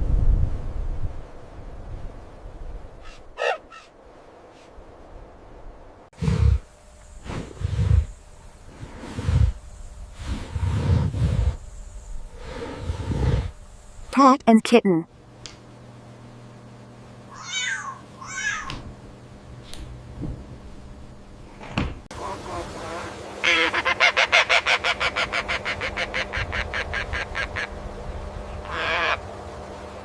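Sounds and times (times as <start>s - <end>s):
cat mewing: 17.3s - 18.8s.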